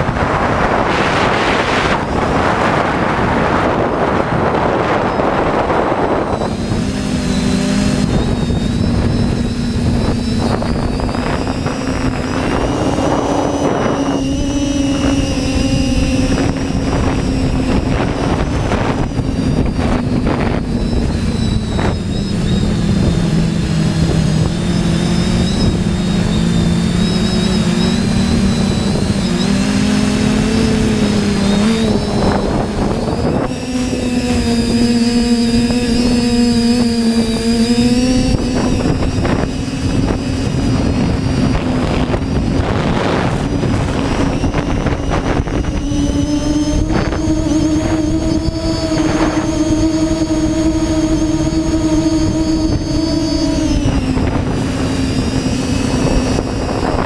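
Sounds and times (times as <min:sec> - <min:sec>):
drone propellers droning: 0:00.0 - 0:57.0
wind noise on microphone: 0:00.0 - 0:57.0.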